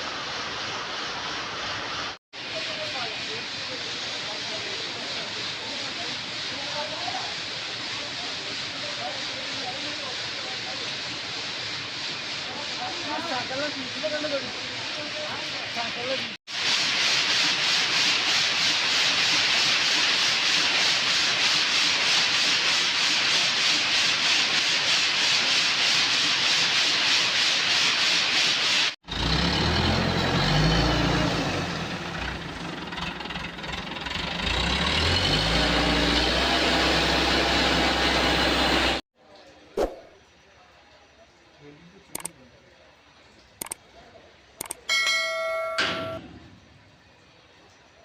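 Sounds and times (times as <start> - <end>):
machinery hiss: 0.0 - 29.0.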